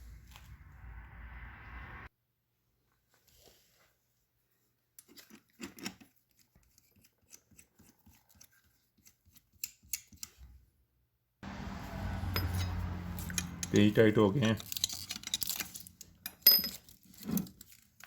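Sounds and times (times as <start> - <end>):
hand tool scraping metal screws: 12.3 - 13.9, 14.5 - 18.0.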